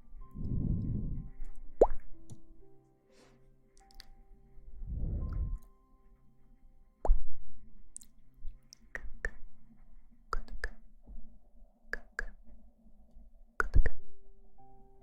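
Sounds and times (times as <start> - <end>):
sharp clicks in pairs: 10.4 - 10.8, 13.6 - 14.1.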